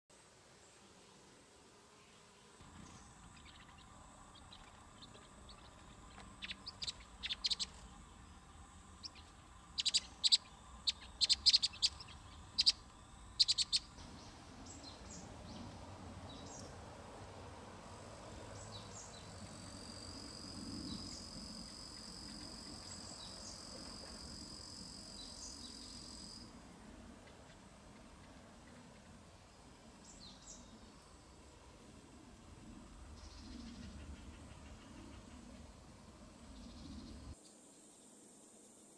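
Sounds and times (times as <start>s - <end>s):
faint low hum: 0.2s - 38.9s
small birds chirping: 2.6s - 16.8s.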